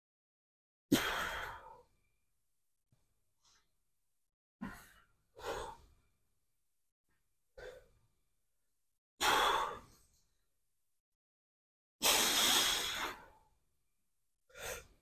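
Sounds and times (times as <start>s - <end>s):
man breathing hard: 4.7s - 5.9s, 9.2s - 10.0s.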